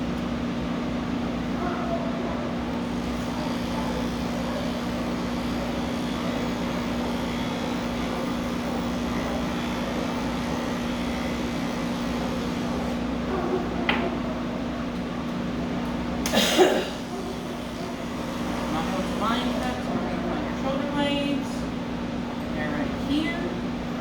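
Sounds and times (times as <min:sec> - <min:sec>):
electric clippers humming: 0:02.8 - 0:13.1, 0:15.8 - 0:21.5.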